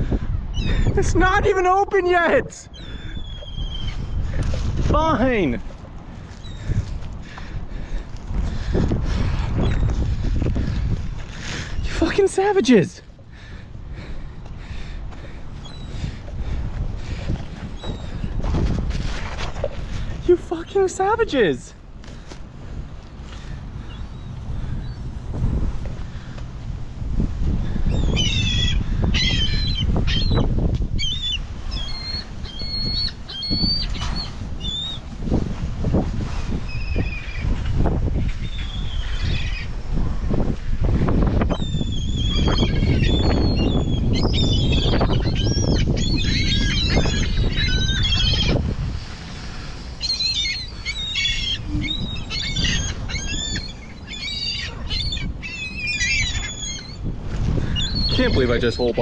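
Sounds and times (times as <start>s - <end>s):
gulls squawking: 0.0s - 4.4s, 5.0s - 8.6s, 10.6s - 18.4s, 27.7s - 35.1s, 36.6s - 39.8s, 40.6s - 59.0s
wind rumbling on microphone: 0.0s - 59.0s.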